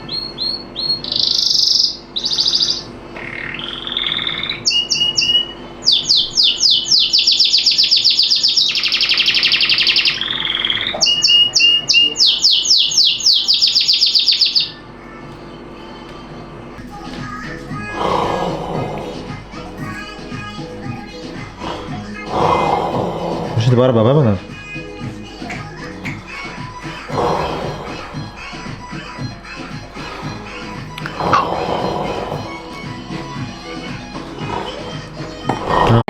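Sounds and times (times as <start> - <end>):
songbird chirps and trills: 0.0 - 15.0.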